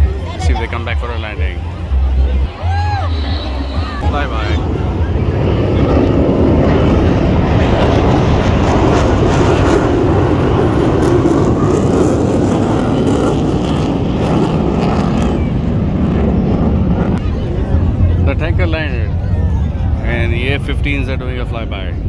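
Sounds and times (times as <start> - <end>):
jet aircraft passing low: 0.0 - 22.0.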